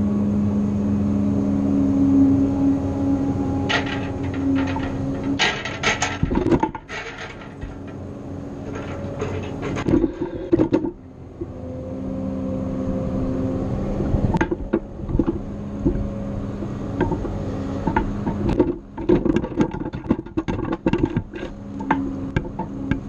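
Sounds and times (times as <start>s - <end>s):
grapple loader engine running: 0.0s - 23.0s
metal clanks and knocks: 3.6s - 11.0s, 14.3s - 23.0s.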